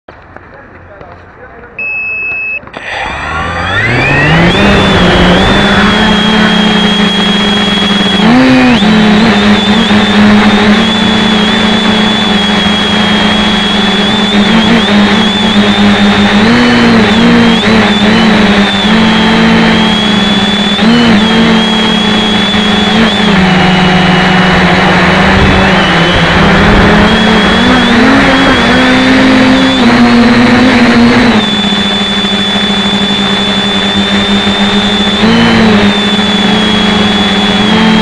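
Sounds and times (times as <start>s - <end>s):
drone propellers whining: 1.8s - 38.0s.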